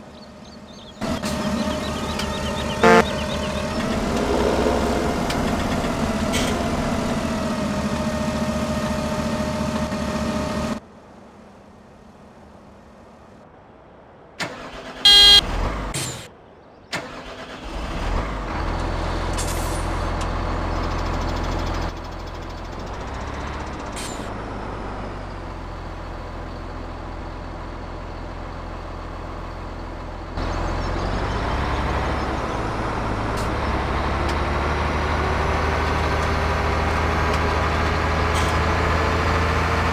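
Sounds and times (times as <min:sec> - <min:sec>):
vehicle engines running: 0:00.0 - 0:13.4, 0:14.5 - 0:16.0, 0:17.4 - 0:39.9
loud horn tone: 0:01.0 - 0:06.7, 0:15.1 - 0:15.4.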